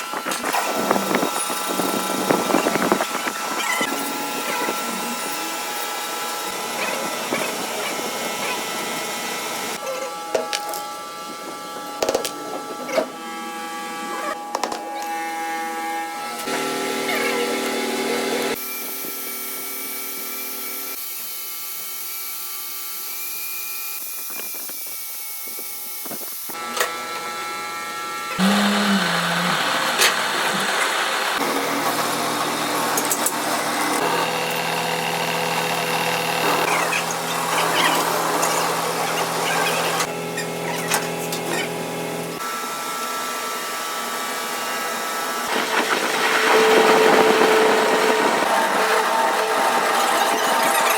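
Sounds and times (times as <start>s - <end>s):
lathe motor hum: 26.6s - 42.4s, 43.2s - 50.9s.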